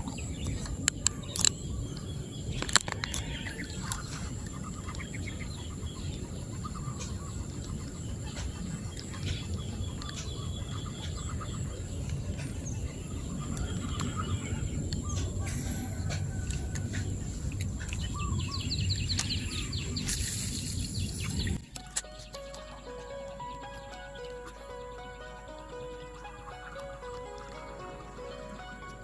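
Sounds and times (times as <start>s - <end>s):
steady low rumble: 0.0s - 21.7s
birds chirping: 0.0s - 29.0s.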